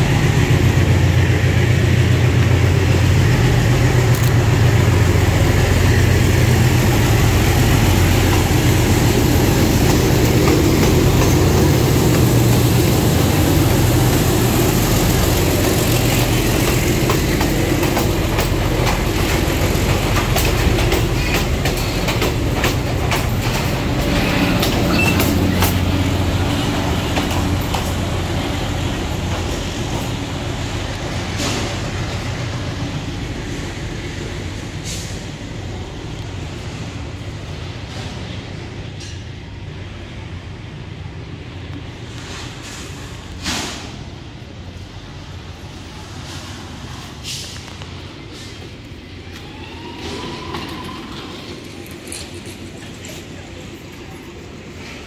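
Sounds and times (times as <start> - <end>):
locomotive engine hum: 0.0 - 55.0
train wheels clacking on rail joints: 0.1 - 32.3.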